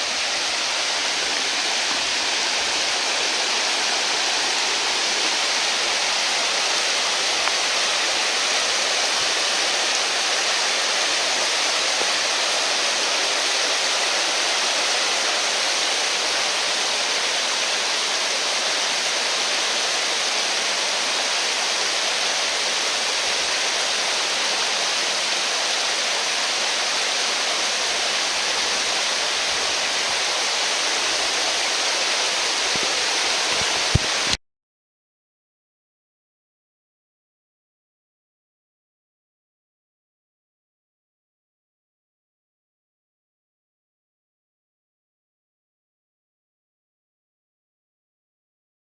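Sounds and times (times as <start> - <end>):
rushing water: 0.0 - 34.4.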